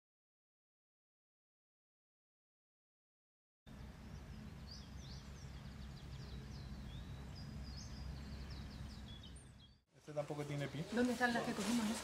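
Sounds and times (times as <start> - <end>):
small birds chirping: 3.7 - 12.0.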